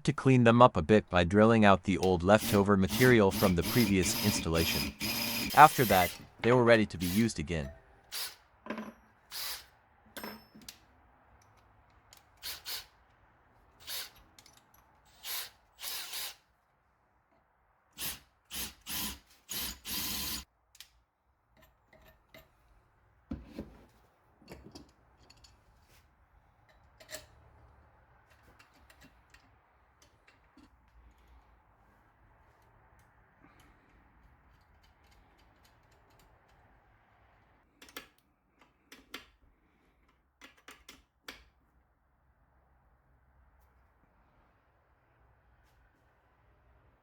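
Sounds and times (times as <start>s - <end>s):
power drill drilling metal: 2.4s - 6.4s, 7.0s - 7.3s, 8.1s - 8.4s, 9.3s - 9.7s, 13.8s - 14.2s, 15.1s - 16.4s, 18.0s - 20.4s.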